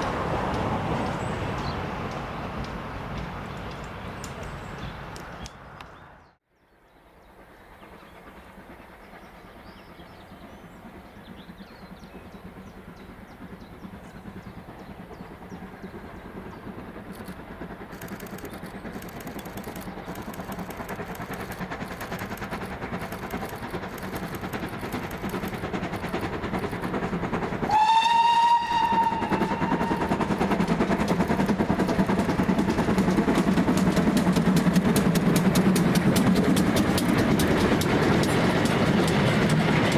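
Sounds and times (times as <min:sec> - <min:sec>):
steam locomotive approaching: 0:00.0 - 0:39.9
steam whistle blast: 0:27.7 - 0:30.2.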